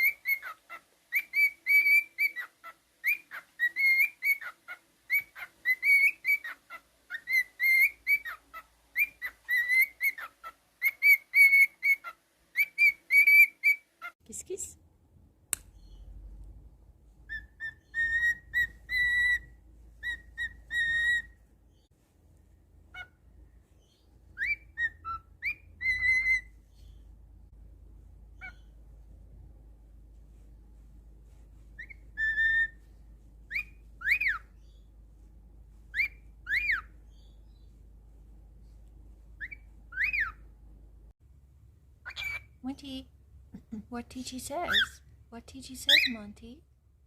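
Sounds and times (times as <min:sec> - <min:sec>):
cockatiel whistling: 0:00.0 - 0:14.1, 0:17.3 - 0:21.4, 0:23.8 - 0:27.0, 0:31.8 - 0:32.8, 0:33.5 - 0:34.8, 0:35.9 - 0:37.6, 0:39.4 - 0:40.4, 0:42.0 - 0:42.5.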